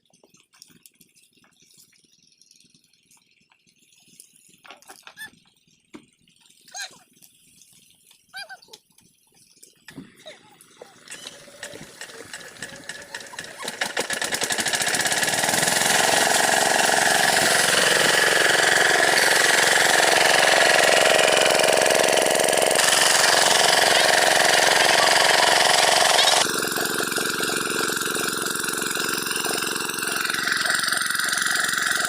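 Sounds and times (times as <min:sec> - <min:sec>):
single-cylinder diesel engine: 0:11.0 - 0:32.0.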